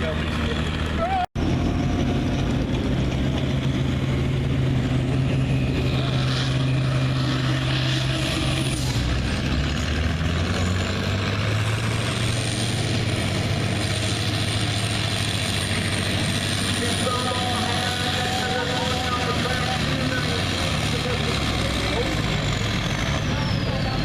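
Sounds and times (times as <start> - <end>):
tractor diesel engine under load: 0.0 - 24.0.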